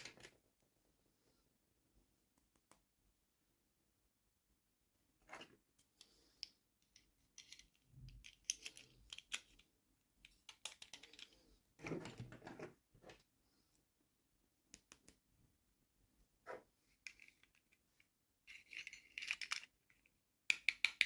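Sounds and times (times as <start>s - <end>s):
plastic toy pieces clicking: 6.9s - 11.4s, 18.5s - 21.0s.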